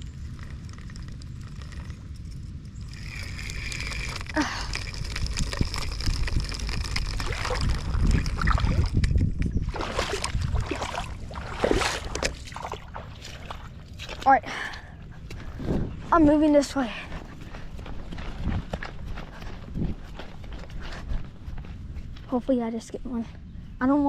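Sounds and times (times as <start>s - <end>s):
water sloshing from wading: 2.9s - 14.8s.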